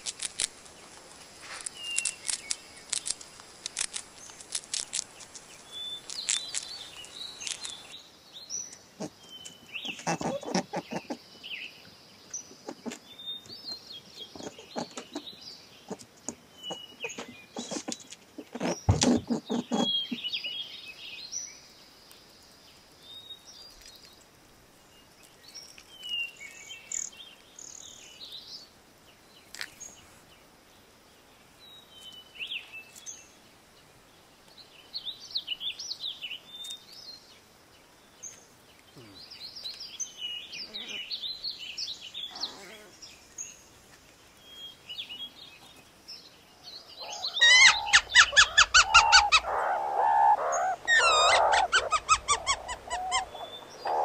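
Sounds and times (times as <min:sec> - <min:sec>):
small birds chirping: 0:00.0 - 0:54.0
thump: 0:18.9 - 0:19.3.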